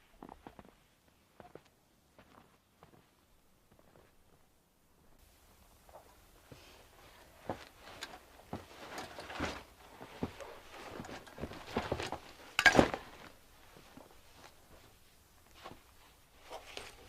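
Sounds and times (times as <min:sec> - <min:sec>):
objects knocking and rustling: 0:07.5 - 0:14.9.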